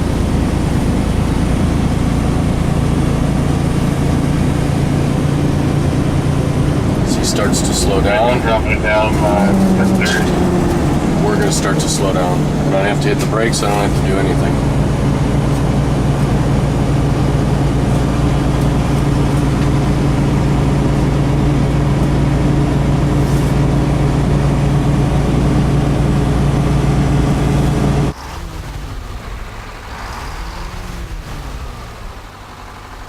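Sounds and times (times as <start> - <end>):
truck engine droning: 0.0 - 33.0
sound rising and falling in pitch: 5.7 - 18.9.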